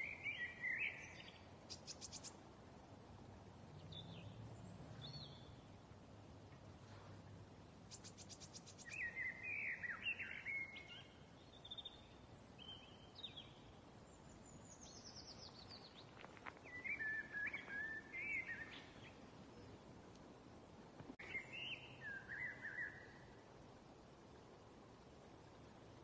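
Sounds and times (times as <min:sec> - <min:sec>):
faint outdoor background noise: 0:00.0 - 0:26.0
songbirds chirping and singing: 0:07.9 - 0:19.8.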